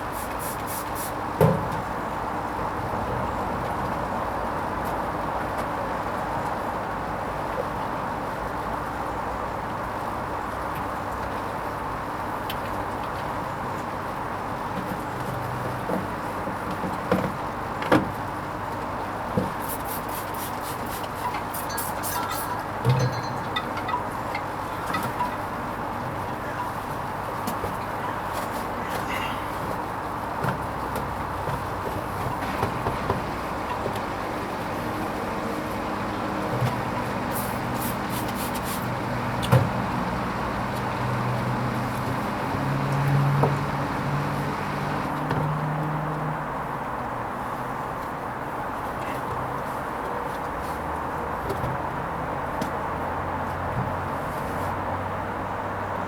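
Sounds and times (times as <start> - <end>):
washing machine running: 31.3 - 45.3
washing machine motor hum: 39.0 - 45.2.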